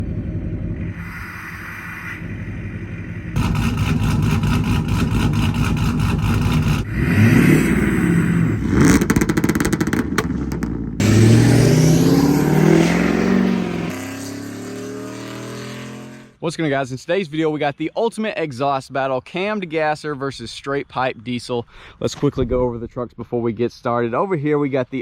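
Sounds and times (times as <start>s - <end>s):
truck engines idling and revving: 0.0s - 16.4s.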